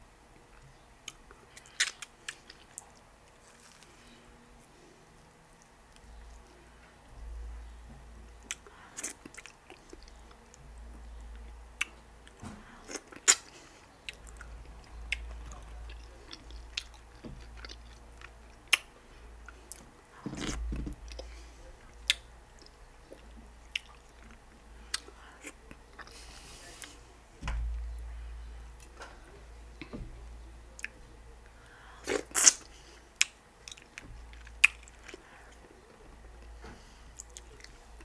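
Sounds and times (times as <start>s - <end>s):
person chewing slimy soup: 1.0s - 4.1s, 8.3s - 27.0s, 31.6s - 36.6s.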